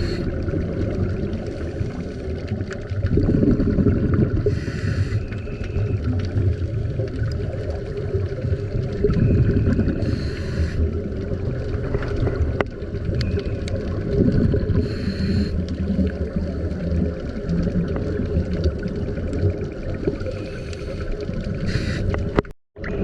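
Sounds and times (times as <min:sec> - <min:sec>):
diver breathing through regulator: 0:00.0 - 0:00.4, 0:04.4 - 0:05.5, 0:09.9 - 0:11.0, 0:14.8 - 0:15.6, 0:20.3 - 0:22.2
underwater bubbling and gurgling: 0:00.0 - 0:23.0.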